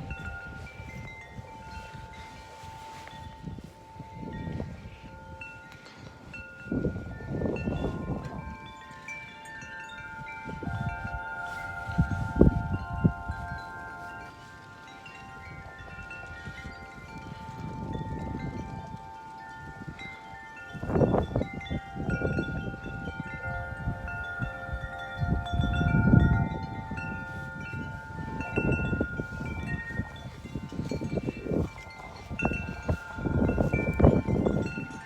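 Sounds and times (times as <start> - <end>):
wind chimes ringing: 0.0 - 35.0
wind gusts on microphone: 0.0 - 35.0.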